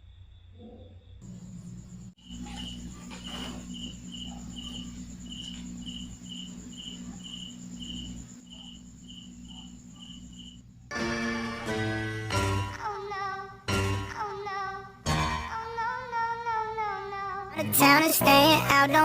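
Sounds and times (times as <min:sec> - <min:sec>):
cricket chirping: 0:00.0 - 0:13.1
low steady hum: 0:01.2 - 0:10.9
music: 0:10.9 - 0:19.0.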